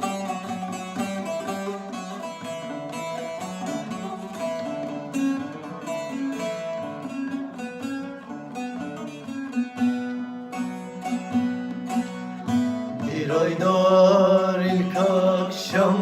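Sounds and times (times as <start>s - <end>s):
plucked string instruments melody: 0.0s - 16.0s.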